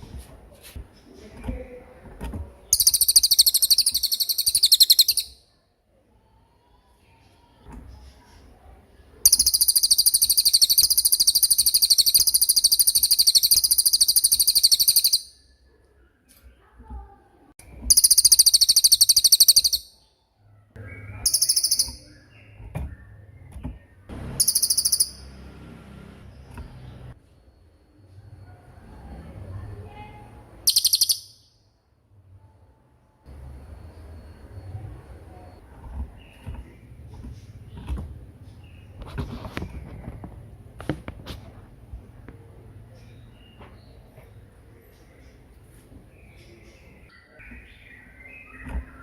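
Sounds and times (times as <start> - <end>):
faint bird chirps: 2.6 - 25.5, 26.2 - 40.0, 42.4 - 49.0
songbird trilling: 2.7 - 5.4, 9.3 - 15.4, 17.9 - 20.0, 20.9 - 22.6, 24.4 - 25.4, 30.7 - 31.4.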